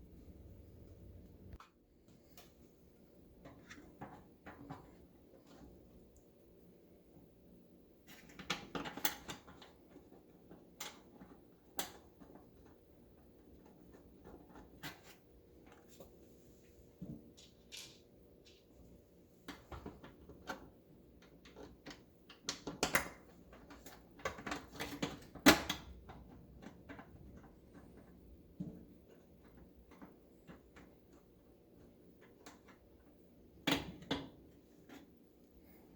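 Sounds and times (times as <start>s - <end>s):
plastic parts clicking and knocking: 19.4s - 35.2s.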